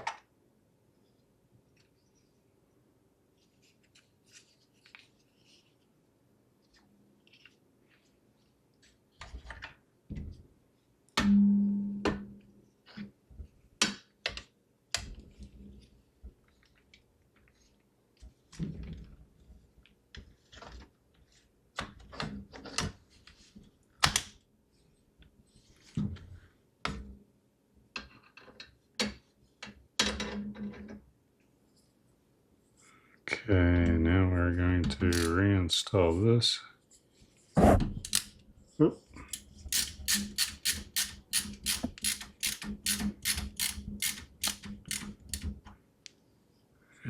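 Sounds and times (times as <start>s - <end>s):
computer parts clicking and knocking: 39.4s - 45.6s.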